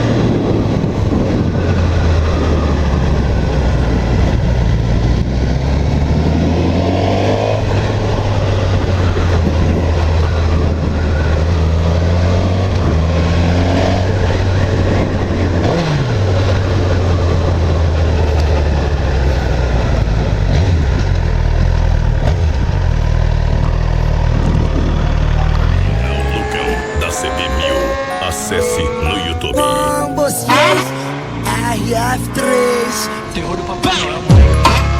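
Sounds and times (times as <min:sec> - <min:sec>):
wind and road noise: 0:00.0 - 0:25.9.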